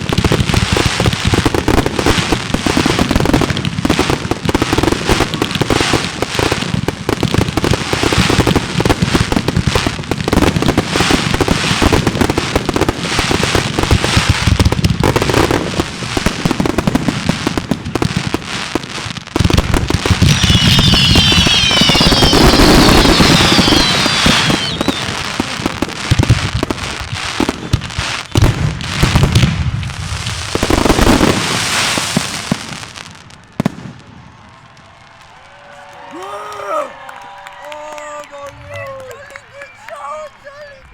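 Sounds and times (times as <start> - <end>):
fireworks bursts and crackling: 0.0 - 40.9
fireworks whistles sliding in pitch: 20.0 - 25.4.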